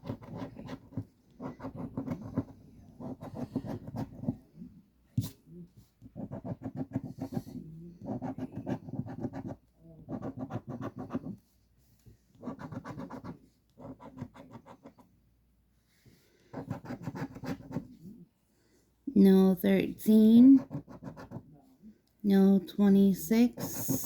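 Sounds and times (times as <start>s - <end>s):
lottery ticket being scratched: 23.0s - 24.0s.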